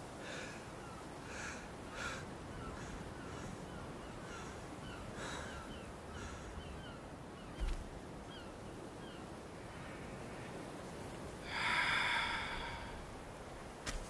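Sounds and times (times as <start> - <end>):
harsh caw-like bird call: 0.3 - 7.0.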